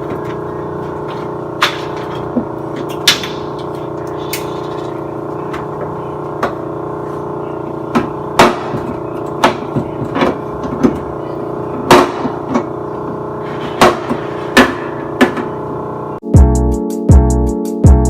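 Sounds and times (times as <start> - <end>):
sharp knocks and clatters: 0.0 - 6.7, 11.9 - 15.6
background music with held chord: 16.2 - 18.0.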